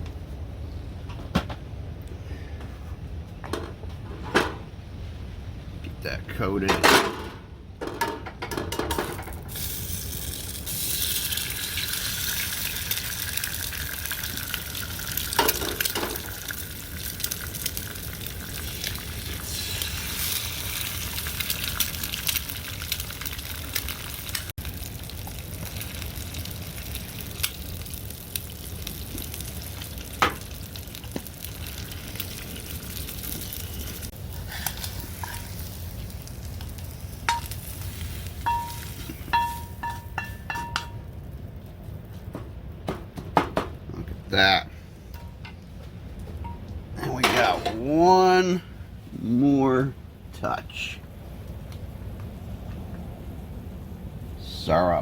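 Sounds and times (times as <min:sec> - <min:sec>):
food sizzling in a pan: 0:09.4 - 0:41.0.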